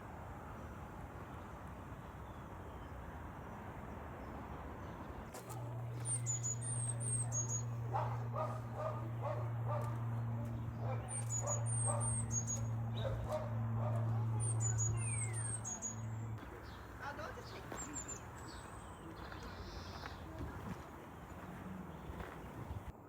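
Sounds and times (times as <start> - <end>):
small birds chirping: 5.1 - 22.9
dog barking: 7.9 - 10.0, 10.8 - 14.3.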